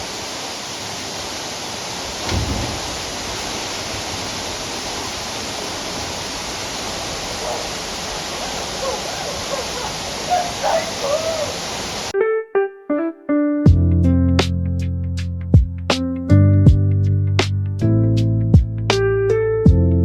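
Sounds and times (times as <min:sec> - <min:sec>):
heavy rain: 0:00.0 - 0:12.1
waterfall rushing: 0:00.0 - 0:12.1
piano music: 0:12.1 - 0:20.0.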